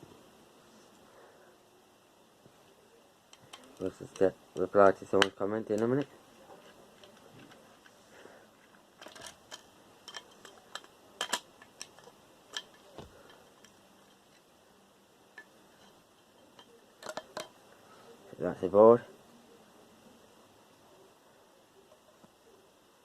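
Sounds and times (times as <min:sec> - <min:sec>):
faint clicks of small parts: 0:02.4 - 0:14.6, 0:15.3 - 0:17.8.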